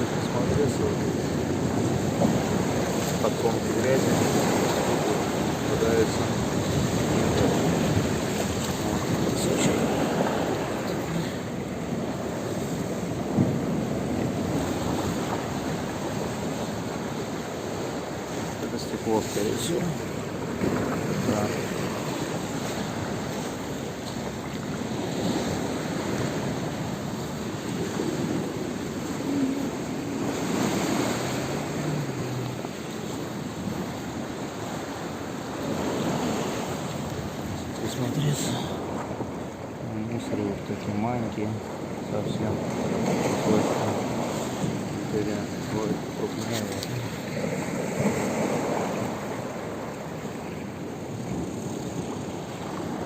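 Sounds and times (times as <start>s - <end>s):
wind on microphone: 0.0s - 39.8s
waves washing onto beach: 0.0s - 53.0s.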